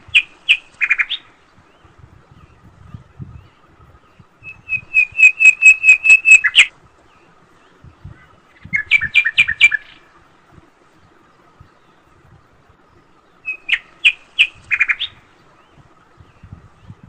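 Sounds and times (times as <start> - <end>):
bird chirping: 0.0 - 10.2, 11.0 - 17.0.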